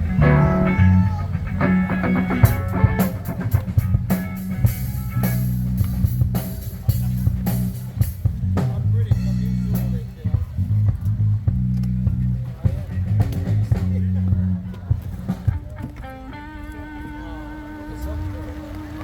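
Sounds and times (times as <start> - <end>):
electric guitar: 0.0 - 7.7, 15.4 - 19.0
rock band playing live: 0.0 - 10.8, 11.6 - 18.8
drum kit: 0.0 - 16.9
bass guitar: 0.0 - 19.0.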